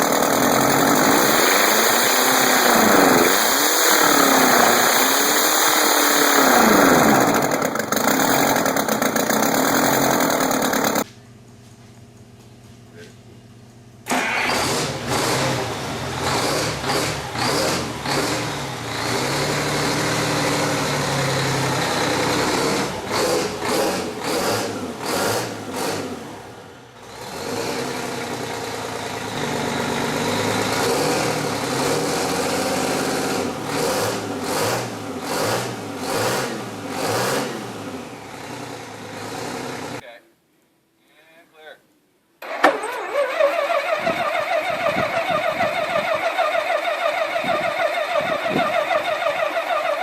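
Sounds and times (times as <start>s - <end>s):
big engine idling: 7.2s - 11.5s.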